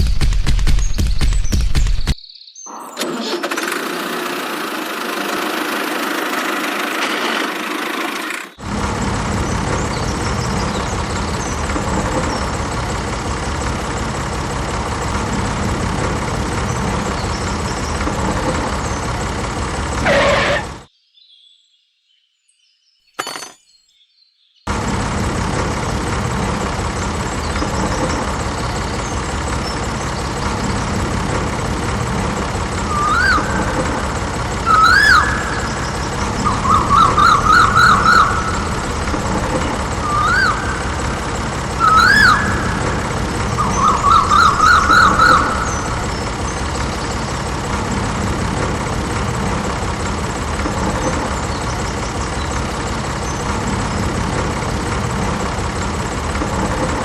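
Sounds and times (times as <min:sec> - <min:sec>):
motor running: 0:02.8 - 0:20.9, 0:24.7 - 0:57.0
siren-like whoops: 0:32.9 - 0:33.7, 0:34.7 - 0:35.8, 0:41.8 - 0:46.0.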